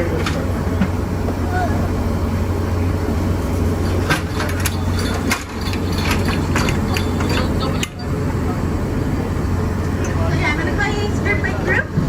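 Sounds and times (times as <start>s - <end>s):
low machinery hum: 0.0s - 12.0s
metallic clanks and clicks: 3.8s - 8.1s.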